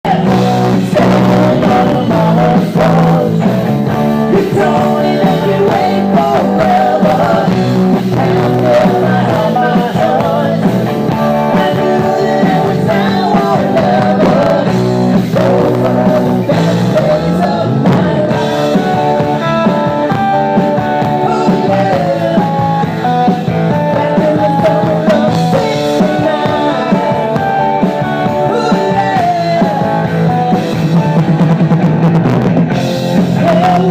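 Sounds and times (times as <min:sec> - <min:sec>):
lead singer singing: 0:00.0 - 0:31.4, 0:33.0 - 0:33.9
bass guitar: 0:00.0 - 0:33.9
drum kit: 0:00.0 - 0:33.9
electric guitar: 0:00.0 - 0:33.9.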